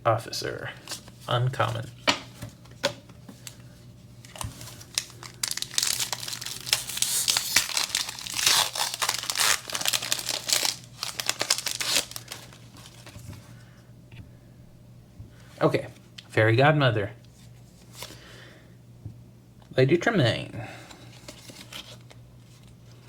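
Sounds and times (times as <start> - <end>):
wrapper tearing and crinkling: 4.2 - 13.2.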